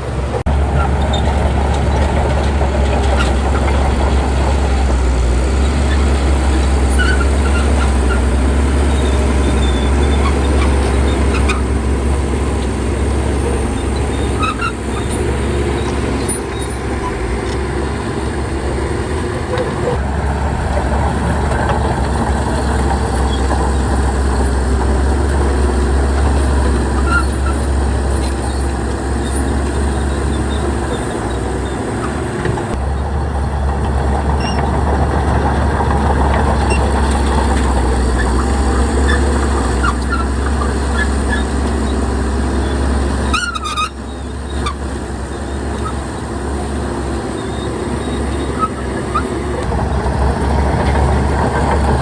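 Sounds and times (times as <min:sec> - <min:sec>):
bulldozer diesel engine running: 0:00.0 - 0:52.0
short high squeaks: 0:13.7 - 0:17.2, 0:27.0 - 0:31.9, 0:42.6 - 0:46.0.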